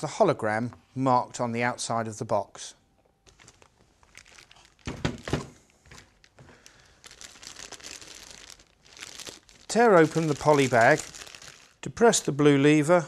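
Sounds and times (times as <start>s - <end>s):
plastic packaging crinkling: 3.2s - 12.4s.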